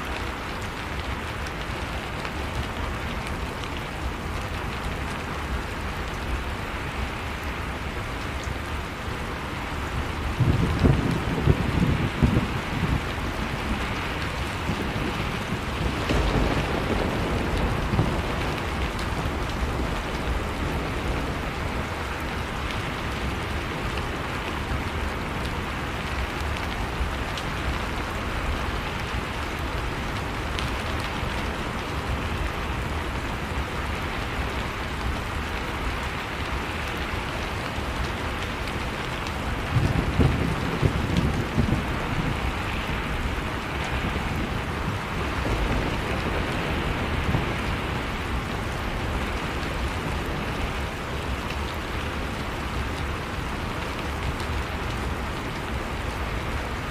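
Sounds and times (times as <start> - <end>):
heavy rain hissing: 0.0 - 56.9.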